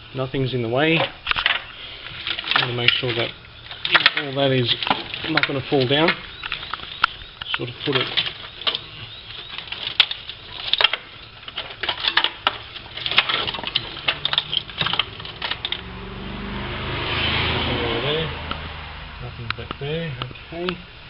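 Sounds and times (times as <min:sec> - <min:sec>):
small parts clicking and knocking: 0:01.0 - 0:15.9
low hum: 0:03.3 - 0:21.0
rushing noise: 0:14.7 - 0:19.4.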